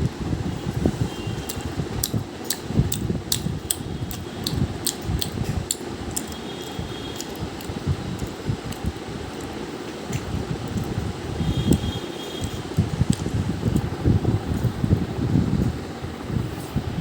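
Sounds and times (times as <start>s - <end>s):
fan hum: 0.0s - 17.0s
open-mouthed chewing: 1.5s - 13.9s.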